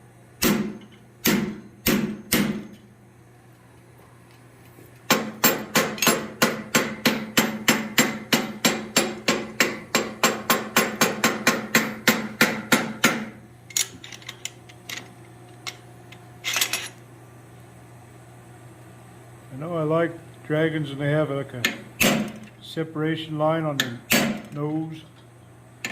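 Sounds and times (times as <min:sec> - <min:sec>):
hammer striking steel on anvil: 0:00.4 - 0:02.8, 0:05.1 - 0:13.4, 0:23.8 - 0:24.4.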